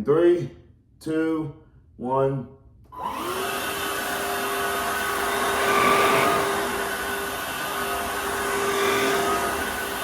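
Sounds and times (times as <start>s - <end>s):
stick vacuum running: 3.0s - 10.0s.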